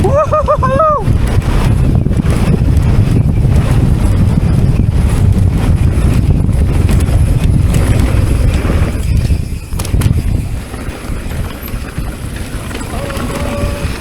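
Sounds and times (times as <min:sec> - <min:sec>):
bike rattling over rough trail: 0:00.0 - 0:14.0
wind buffeting microphone: 0:00.0 - 0:14.0.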